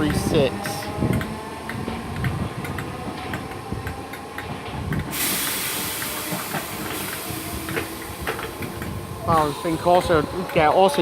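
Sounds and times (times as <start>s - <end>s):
train wheels clicking over rails: 0.0s - 11.0s
steady hiss of air: 5.1s - 10.4s.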